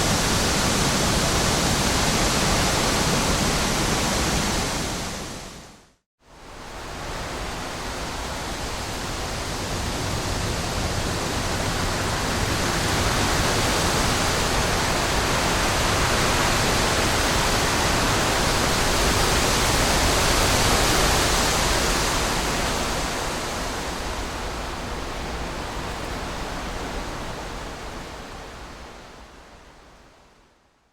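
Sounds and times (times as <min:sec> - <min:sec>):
wind blowing: 0:06.9 - 0:30.2.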